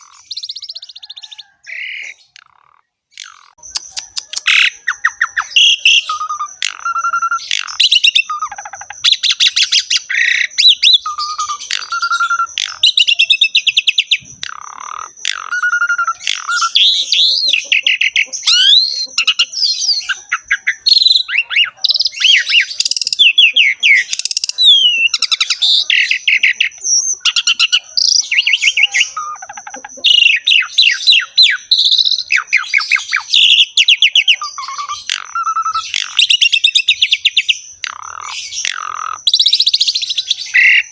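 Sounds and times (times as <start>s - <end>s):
starling singing: 0.0s - 40.9s.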